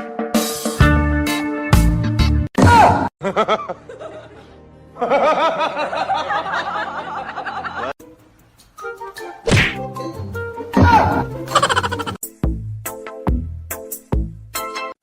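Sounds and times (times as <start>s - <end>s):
music: 0.0s - 15.0s
snickering laugh: 3.2s - 7.9s, 11.5s - 12.2s.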